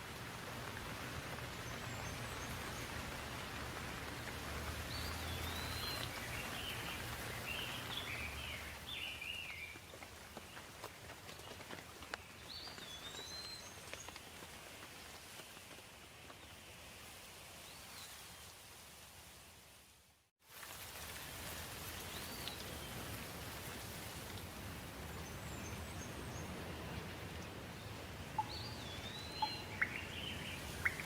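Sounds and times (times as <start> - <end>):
raindrops ticking: 0.0 - 15.8, 28.4 - 31.0
rain falling: 0.0 - 16.6, 20.4 - 31.0
bird chirping: 28.4 - 31.0.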